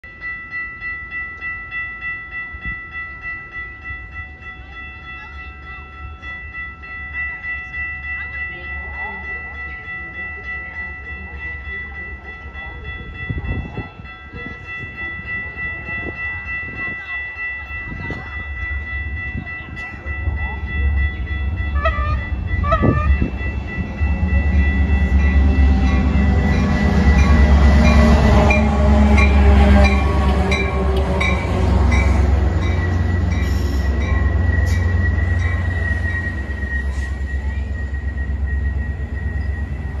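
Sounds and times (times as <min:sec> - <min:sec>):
diesel locomotive rumble: 0:07.3 - 0:40.0
steady high-pitched tone: 0:15.1 - 0:40.0
high wheel squeal: 0:33.4 - 0:39.8.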